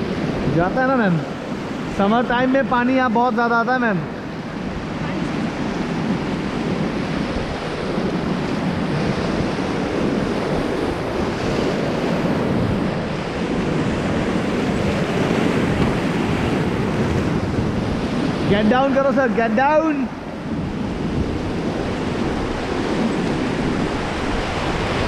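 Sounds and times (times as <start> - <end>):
whitewater rushing: 0.0 - 25.0
wind buffeting microphone: 0.0 - 25.0.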